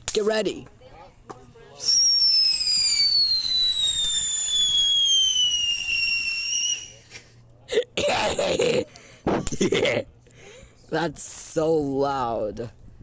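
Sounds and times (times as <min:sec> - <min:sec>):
whistling firework: 0:01.8 - 0:07.0.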